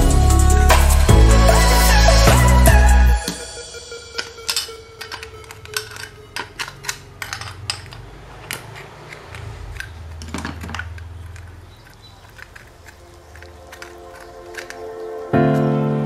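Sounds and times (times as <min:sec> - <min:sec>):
small hard parts clinking: 0:03.2 - 0:15.4.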